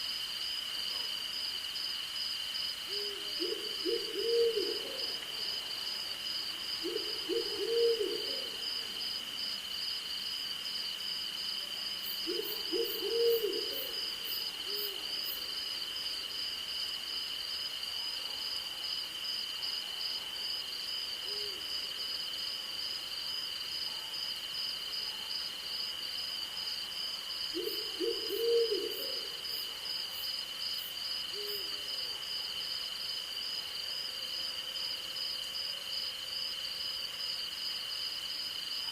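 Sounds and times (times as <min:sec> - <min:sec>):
night insects chorus: 0:00.0 - 0:38.9
owl hooting: 0:02.9 - 0:05.1, 0:06.8 - 0:08.6, 0:12.3 - 0:14.0, 0:27.6 - 0:29.3.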